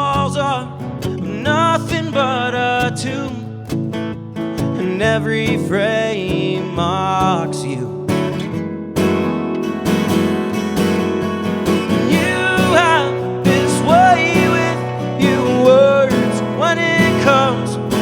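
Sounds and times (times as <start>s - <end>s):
man singing: 0.0s - 4.0s, 4.6s - 8.4s, 11.7s - 18.0s
acoustic guitar strumming: 0.0s - 18.0s.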